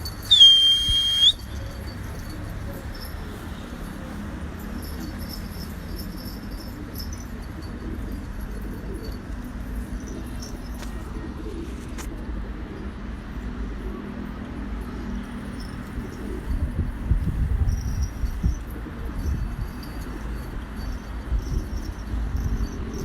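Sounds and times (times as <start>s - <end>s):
steady background noise: 0.0s - 23.0s.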